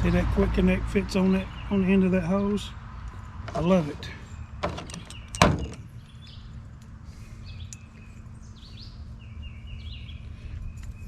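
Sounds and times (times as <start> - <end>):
small birds chirping: 0.9 - 11.0.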